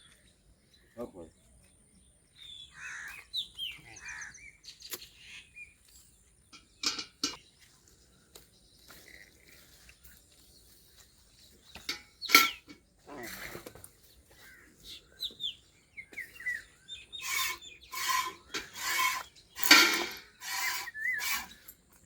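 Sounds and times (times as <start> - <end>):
birds chirping: 0.0 - 22.0
crow calls: 2.7 - 3.3.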